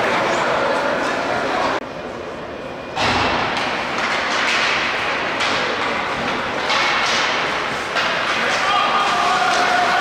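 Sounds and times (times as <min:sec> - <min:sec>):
crowd noise: 0:00.0 - 0:10.0
hockey sticks and puck knocking: 0:03.4 - 0:10.0.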